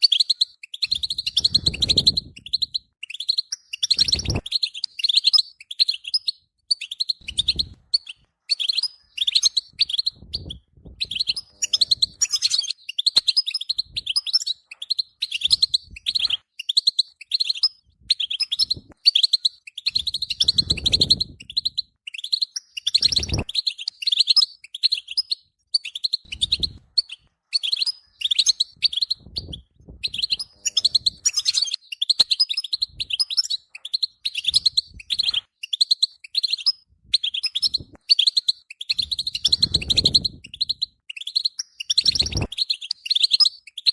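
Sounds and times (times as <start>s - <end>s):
goldfinch twittering song: 0.0s - 43.9s.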